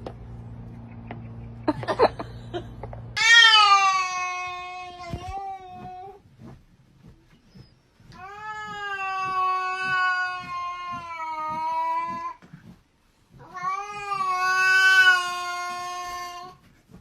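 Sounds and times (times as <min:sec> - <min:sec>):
cat yowling: 0:03.2 - 0:06.2, 0:08.2 - 0:12.4, 0:13.4 - 0:16.6.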